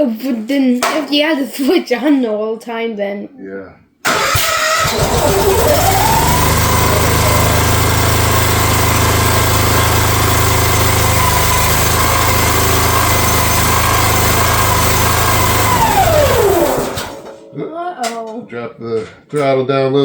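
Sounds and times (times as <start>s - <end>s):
excavator engine running: 4.1s - 17.5s.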